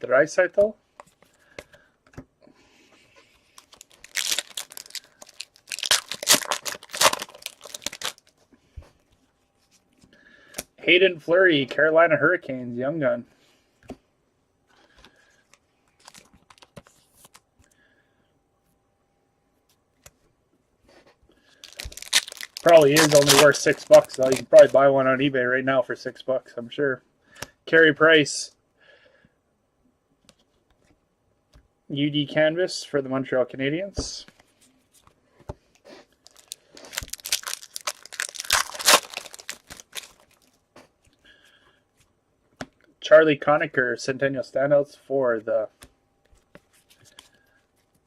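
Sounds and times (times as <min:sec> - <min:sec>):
cards clicking and rustling: 0:03.5 - 0:08.3, 0:21.7 - 0:24.8, 0:36.3 - 0:40.5
foil wrapper crinkling and tearing: 0:03.5 - 0:08.3, 0:16.0 - 0:17.4, 0:21.5 - 0:24.8, 0:36.2 - 0:40.6.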